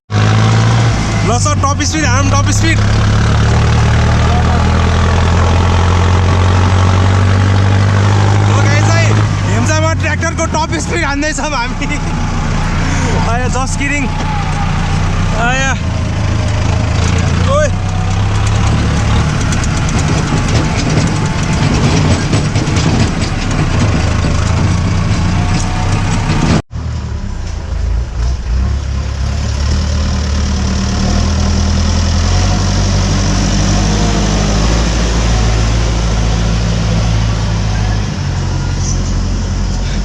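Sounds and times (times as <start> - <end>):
tractor diesel engine running: 0.1 - 40.0
fast clattering rattle: 16.8 - 26.6.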